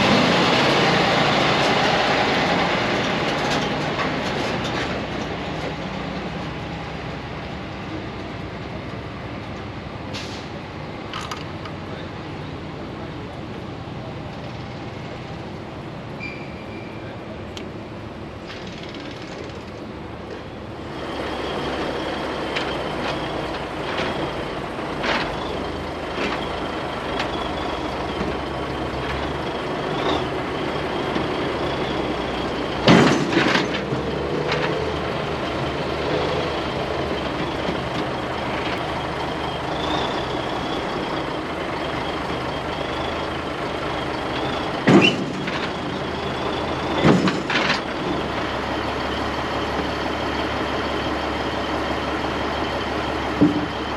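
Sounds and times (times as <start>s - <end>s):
diesel engine running: 0.0s - 16.2s, 17.0s - 53.9s.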